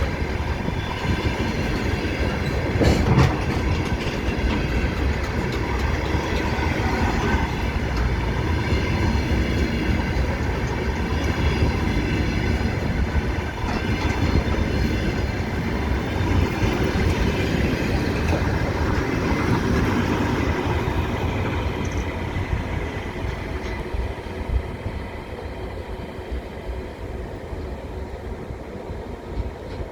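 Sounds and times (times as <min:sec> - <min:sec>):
train wheels clattering on rails: 0:00.0 - 0:24.6, 0:29.0 - 0:29.9.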